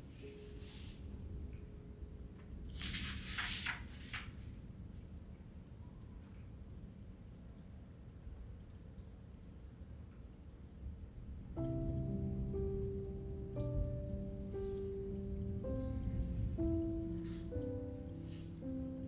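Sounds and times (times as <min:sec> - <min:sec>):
rustling: 0:00.0 - 0:06.5, 0:13.8 - 0:19.0
crickets chirring: 0:00.0 - 0:19.0
low rumble: 0:11.6 - 0:18.6.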